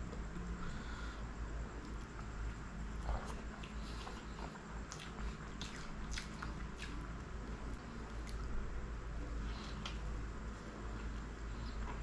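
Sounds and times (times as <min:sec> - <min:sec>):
person chewing food: 0:01.8 - 0:08.6.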